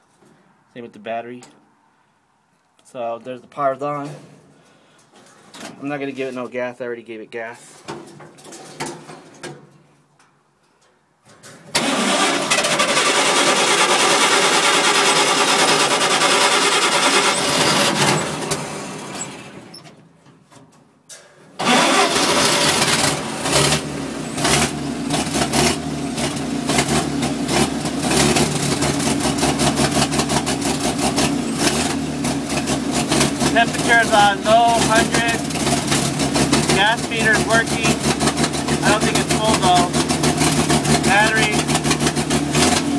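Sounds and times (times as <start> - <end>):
truck engine cranking: 11.3 - 42.9
truck engine running unevenly: 11.8 - 19.8, 21.6 - 42.9.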